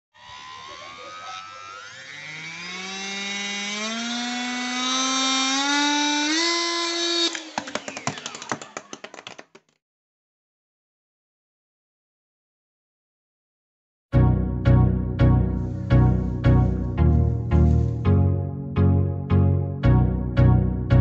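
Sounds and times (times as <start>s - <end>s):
small electric motor whining: 0.1s - 8.8s.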